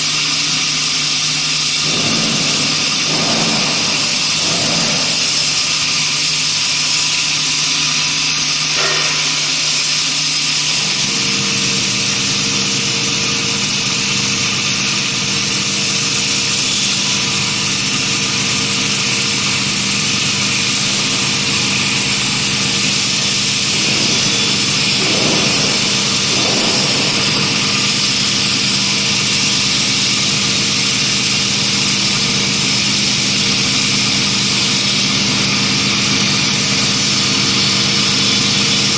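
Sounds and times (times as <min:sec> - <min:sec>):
lathe motor hum: 0:00.0 - 0:38.9.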